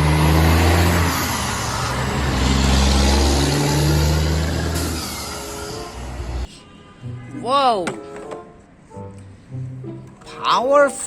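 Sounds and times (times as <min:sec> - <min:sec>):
truck engine humming: 0:00.0 - 0:06.5.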